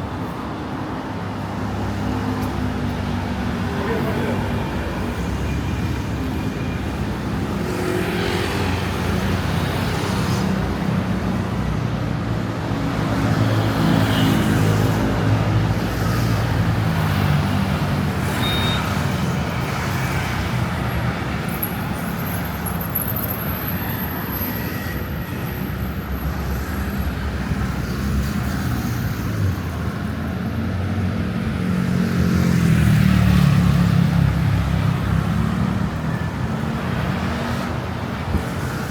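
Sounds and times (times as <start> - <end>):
vehicle engines passing: 26.3 - 38.9.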